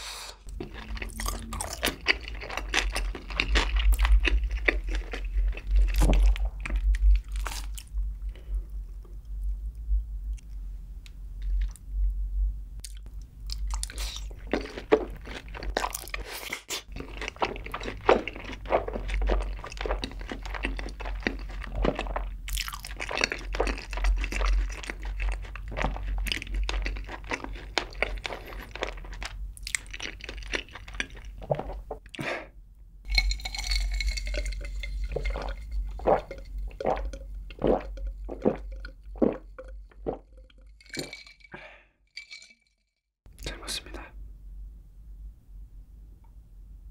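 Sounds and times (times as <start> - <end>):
crunchy chewing: 0.5 - 7.9, 12.8 - 31.8
wet mouth sounds: 0.5 - 7.9, 33.1 - 41.7
swallowing gulps: 30.8 - 32.4, 33.5 - 41.8.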